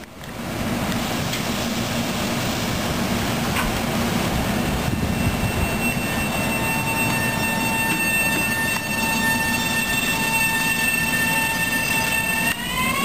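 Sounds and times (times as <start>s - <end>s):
train rumbling: 0.0s - 13.0s
train wheels squealing on rails: 4.9s - 13.0s.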